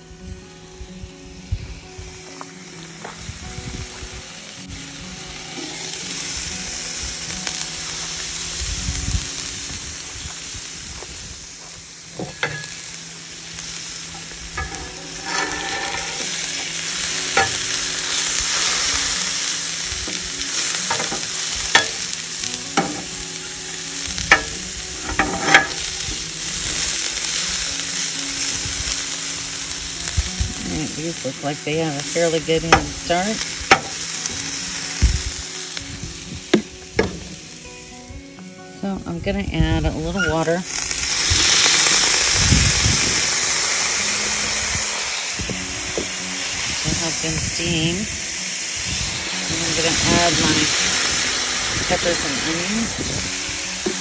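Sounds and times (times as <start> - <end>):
food sizzling on a griddle: 0.0 - 54.0
metal spatula scraping on steel: 14.6 - 19.0, 20.4 - 22.1, 24.3 - 26.0.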